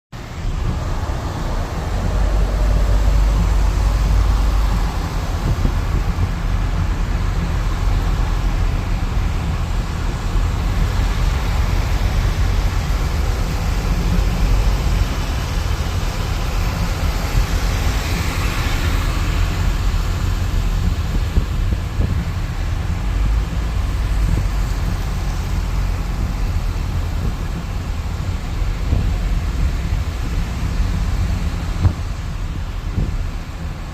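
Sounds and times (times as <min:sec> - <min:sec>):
city traffic noise: 0:00.1 - 0:33.9
wind rumble on microphone: 0:00.2 - 0:33.9.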